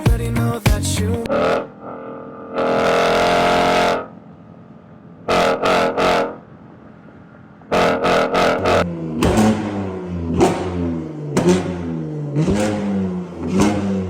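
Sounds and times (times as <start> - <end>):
car engine revving: 1.2 - 4.2, 5.2 - 6.6, 7.7 - 14.0.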